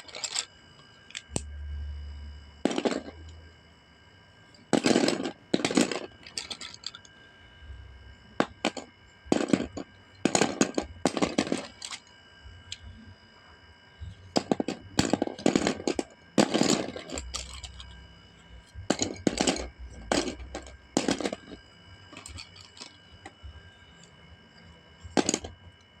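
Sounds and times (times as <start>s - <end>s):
pencils clattering on whiteboard: 25.2s - 25.5s.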